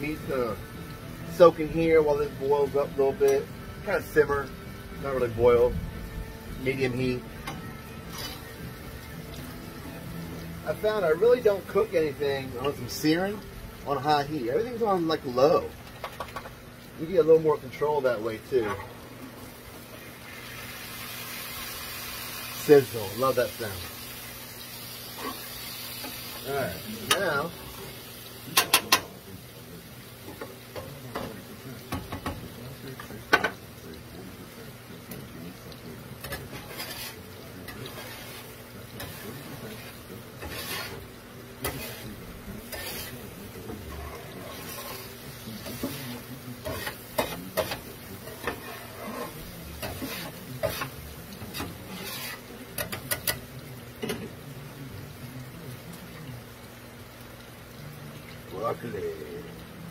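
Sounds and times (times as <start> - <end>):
meat sizzling in a skillet: 0.0 - 59.9
spatula scraping and tapping pan: 7.4 - 8.5, 36.2 - 53.4.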